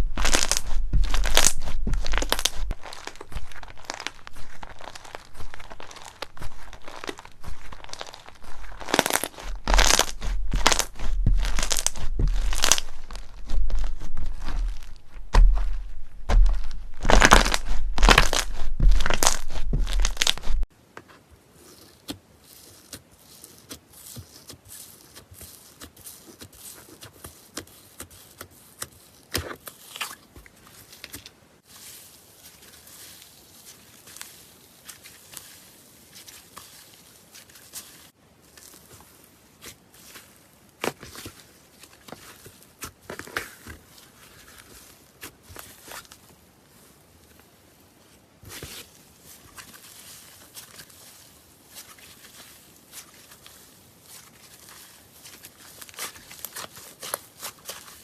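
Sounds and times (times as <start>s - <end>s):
slime crackling when squeezed: 0.1s - 20.7s.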